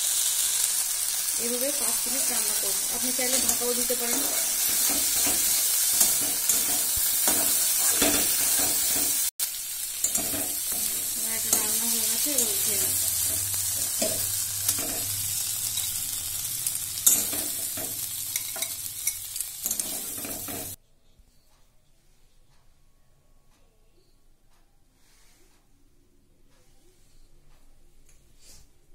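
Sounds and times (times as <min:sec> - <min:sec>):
chickpeas and potato sizzling: 0:00.0 - 0:20.8
metal spatula scraping pan: 0:01.6 - 0:09.3, 0:09.9 - 0:16.0, 0:16.7 - 0:20.8.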